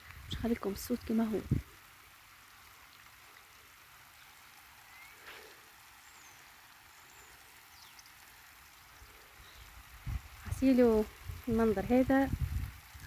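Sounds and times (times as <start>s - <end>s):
water trickling: 0.0s - 13.0s.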